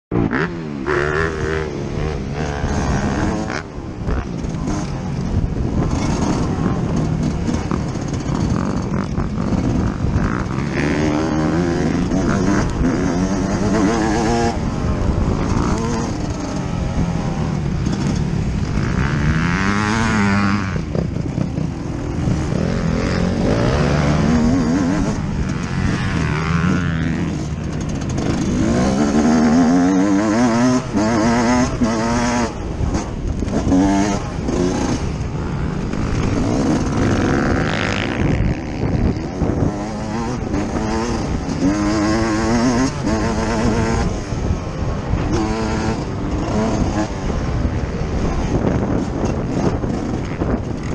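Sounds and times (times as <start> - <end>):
motocross engine revving: 0.1 - 50.9.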